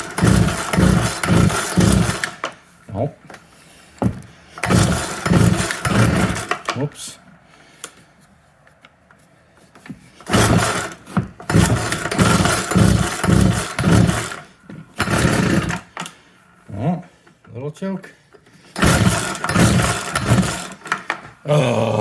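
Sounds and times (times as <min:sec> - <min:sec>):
chainsaw engine running roughly: 0:00.0 - 0:02.4, 0:04.6 - 0:06.6, 0:10.2 - 0:14.4, 0:15.0 - 0:15.9, 0:18.7 - 0:21.1.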